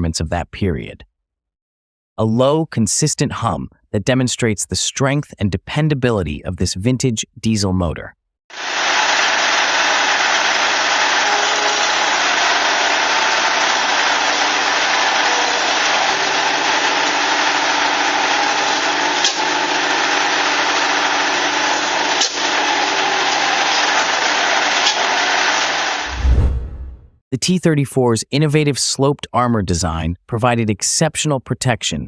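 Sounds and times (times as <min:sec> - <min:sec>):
diesel engine running: 0:08.6 - 0:24.5.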